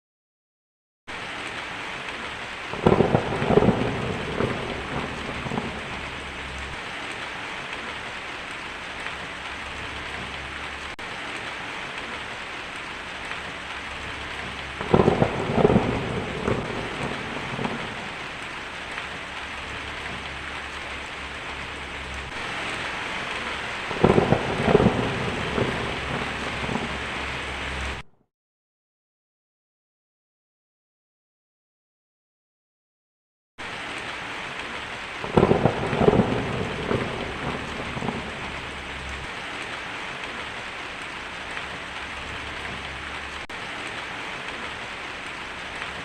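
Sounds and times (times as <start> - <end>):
heavy rainfall: 1.1 - 28.1, 33.6 - 46.0
rolling thunder: 2.7 - 6.8, 14.0 - 28.0, 35.2 - 39.8.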